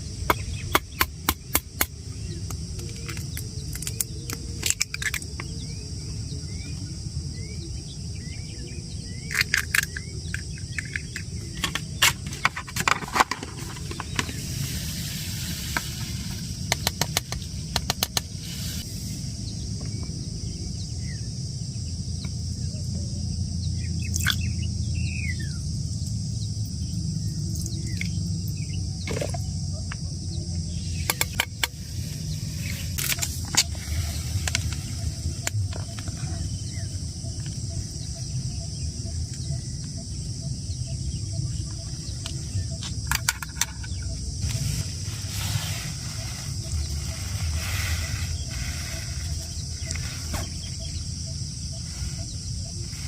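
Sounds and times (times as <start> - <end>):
high insect drone: 0.0 - 53.0
low wind rumble: 0.0 - 53.0
bird chirps: 16.8 - 53.0.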